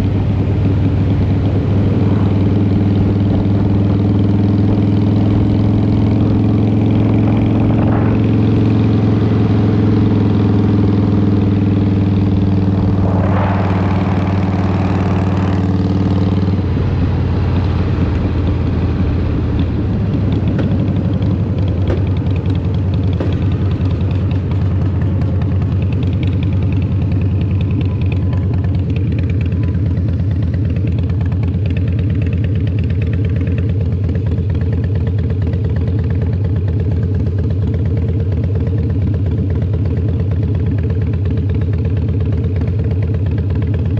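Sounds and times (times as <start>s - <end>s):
motorcycle engine running: 0.0s - 43.9s
brief rushing noise: 12.1s - 19.0s.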